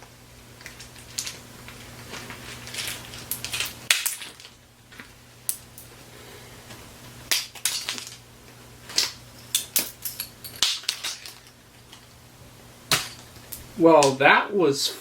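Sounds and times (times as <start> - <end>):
steady low hum: 0.0 - 15.0
small hard objects clicking: 0.6 - 4.6.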